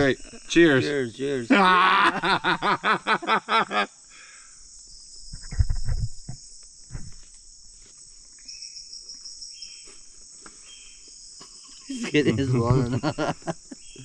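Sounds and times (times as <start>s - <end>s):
held insect calls: 0.0s - 14.0s
insect chorus buzzing: 0.0s - 14.0s.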